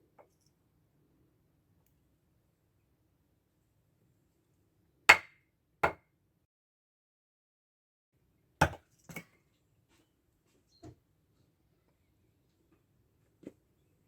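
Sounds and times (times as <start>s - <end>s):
axe chopping firewood: 5.1s - 6.0s, 8.6s - 9.2s.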